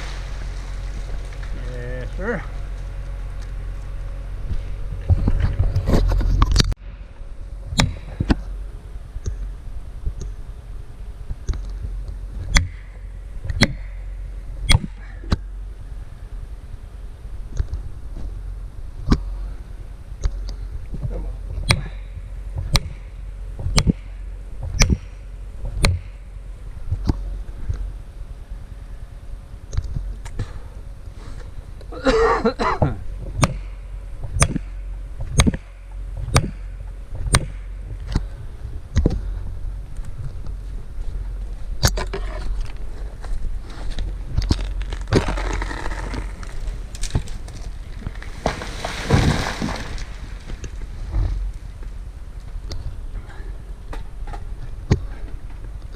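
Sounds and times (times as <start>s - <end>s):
wedge being struck into tree: 13.5s - 13.9s, 21.6s - 21.9s, 22.6s - 23.0s, 23.7s - 24.1s, 33.4s - 33.7s, 34.4s - 34.7s, 35.3s - 35.7s, 36.3s - 37.6s
man coughing: 31.9s - 33.0s
wedge being struck: 34.4s - 35.7s, 36.3s - 36.7s.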